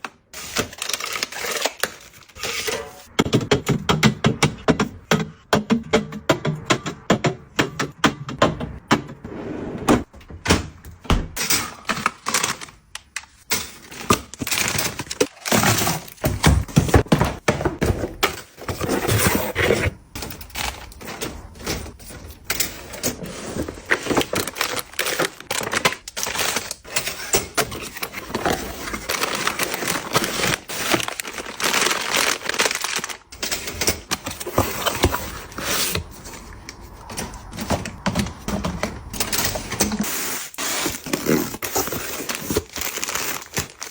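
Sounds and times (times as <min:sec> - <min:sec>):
packaging crackling: 0:11.8 - 0:16.3, 0:23.2 - 0:43.9.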